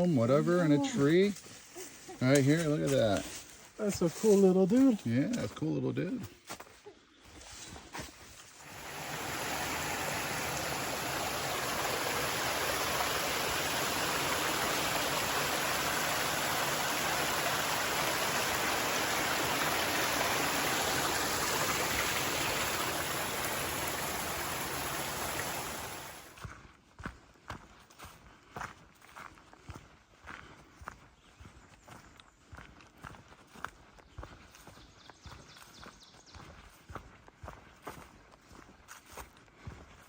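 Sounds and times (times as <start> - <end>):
running water rushing: 8.6 - 26.4.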